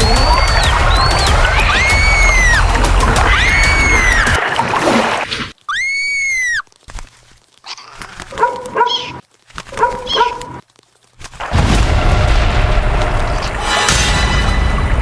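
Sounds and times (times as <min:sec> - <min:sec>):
animal calls: 0:07.6 - 0:10.6.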